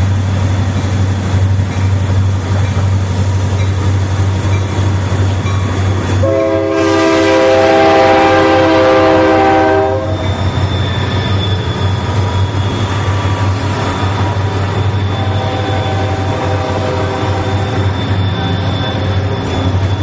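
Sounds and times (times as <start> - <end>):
passing train rumble: 0.0 - 20.0
locomotive air horn blast: 6.2 - 10.2, 15.1 - 17.8.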